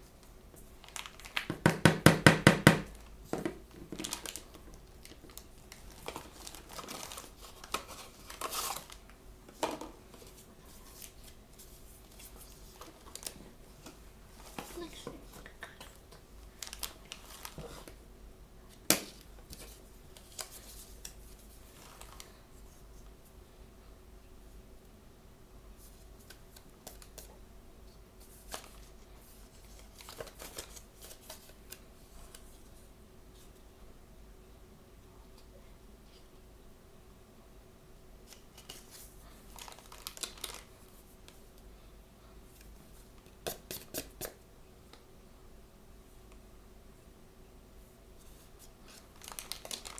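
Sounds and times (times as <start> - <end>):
packaging rustling: 0.8 - 1.6, 2.8 - 9.2, 10.1 - 18.0, 38.3 - 40.8, 48.9 - 49.9.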